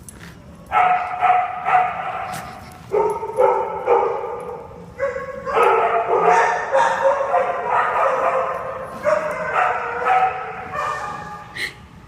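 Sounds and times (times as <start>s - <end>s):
dog barking: 0.7s - 2.4s, 3.0s - 4.4s, 5.0s - 11.4s.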